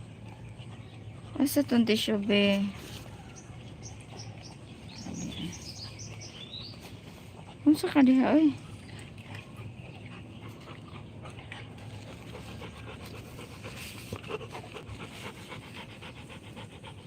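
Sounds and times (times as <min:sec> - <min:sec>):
dog panting: 0:05.1 - 0:17.0.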